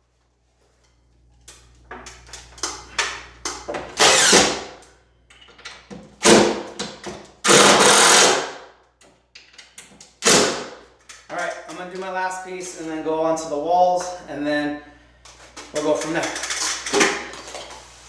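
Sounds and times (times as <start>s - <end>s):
power tool bursts: 4.0s - 4.8s, 7.4s - 8.6s, 10.2s - 10.8s.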